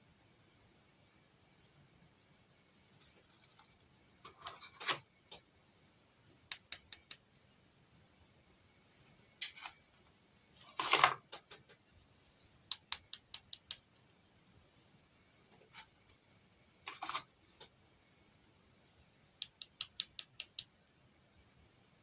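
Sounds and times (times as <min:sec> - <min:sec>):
plastic toys clicking: 0:12.7 - 0:13.8, 0:19.4 - 0:20.7.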